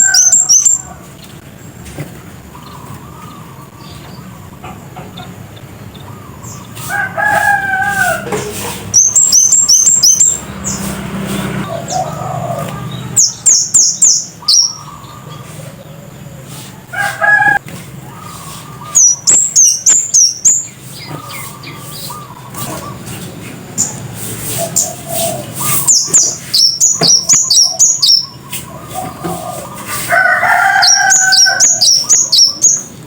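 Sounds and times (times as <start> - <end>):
bird singing sharp high notes: 0.0 - 0.9, 8.9 - 12.1, 12.9 - 15.2, 18.7 - 20.8, 24.7 - 28.5, 30.5 - 33.0.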